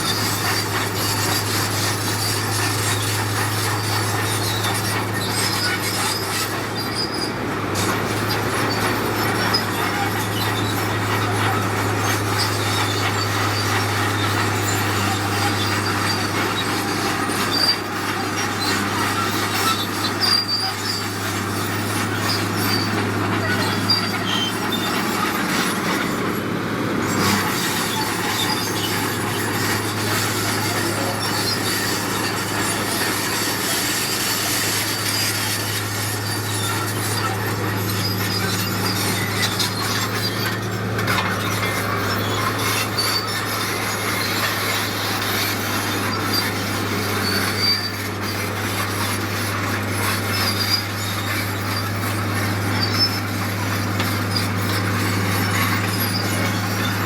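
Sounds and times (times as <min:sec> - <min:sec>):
diesel engine drone: 0:00.0 - 0:57.0
grinding and scraping: 0:00.0 - 0:57.0.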